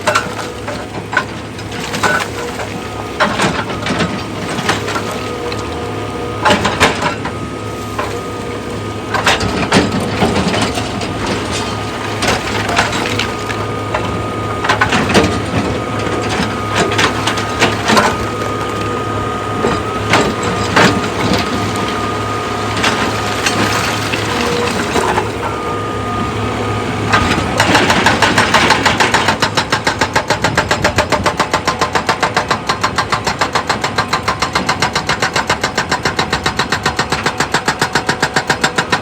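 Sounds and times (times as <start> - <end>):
machine hum: 0.0 - 29.1
stone cracking and crunching: 9.2 - 14.0, 22.7 - 25.4.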